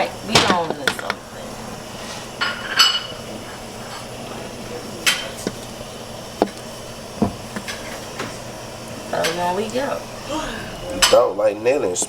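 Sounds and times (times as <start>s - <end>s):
cookware and utensils clinking: 0.0s - 1.3s, 2.1s - 5.6s, 10.8s - 11.4s.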